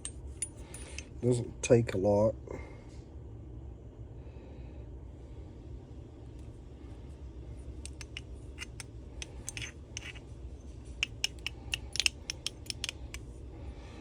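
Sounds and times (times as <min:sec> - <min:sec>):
steady low hum: 0:00.0 - 0:14.0
metallic clicks and scrapes: 0:07.8 - 0:13.3.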